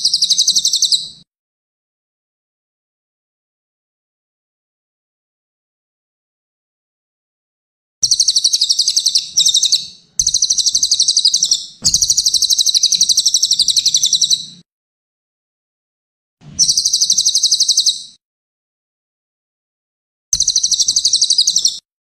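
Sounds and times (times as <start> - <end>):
songbird high-pitched trill: 0.0 - 1.2, 8.0 - 14.6, 16.6 - 18.2, 20.4 - 21.8.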